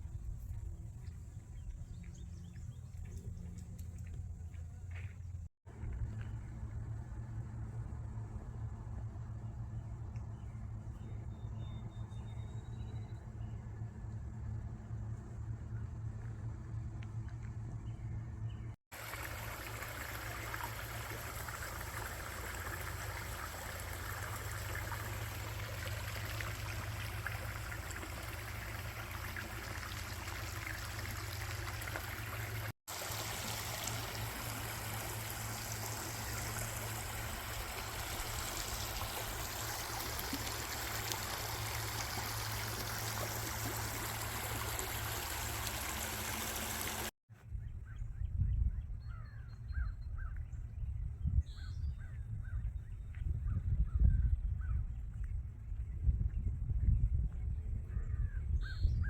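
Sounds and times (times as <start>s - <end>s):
stream running water: 18.9s - 47.1s.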